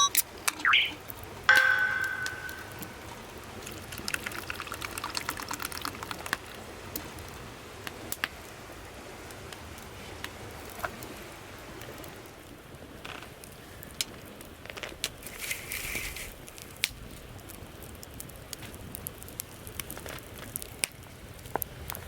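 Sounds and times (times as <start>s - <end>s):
small ticks of pouring: 3.9s - 6.4s.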